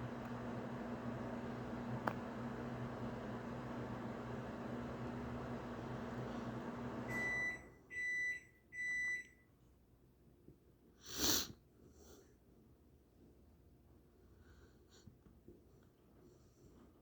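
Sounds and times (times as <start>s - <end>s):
appliance humming: 0.0s - 8.1s.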